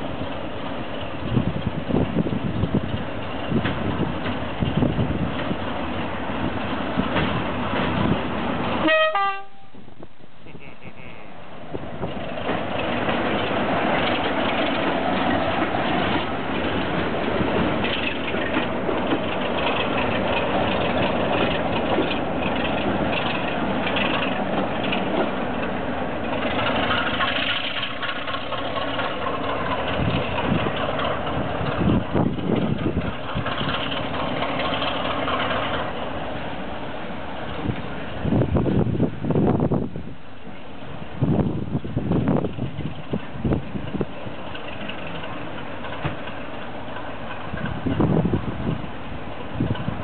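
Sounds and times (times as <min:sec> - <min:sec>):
diesel train engine running: 0:00.0 - 0:50.0
train horn toot: 0:08.8 - 0:09.8.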